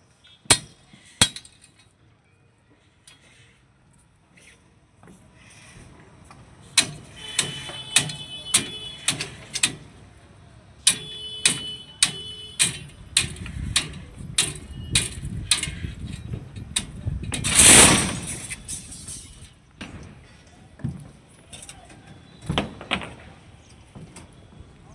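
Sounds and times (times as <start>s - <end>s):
rushing scraping noise: 12.6s - 19.4s.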